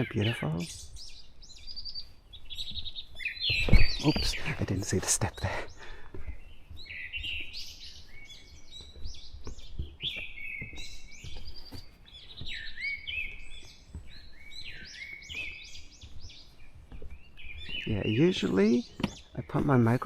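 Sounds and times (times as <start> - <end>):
footsteps on a trail: 0.0 - 20.0
songbirds chirping and warbling: 0.0 - 20.0.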